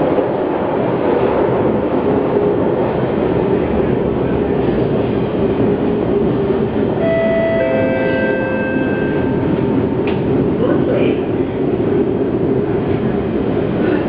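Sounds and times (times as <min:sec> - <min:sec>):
train rumble inside carriage: 0:00.0 - 0:14.0.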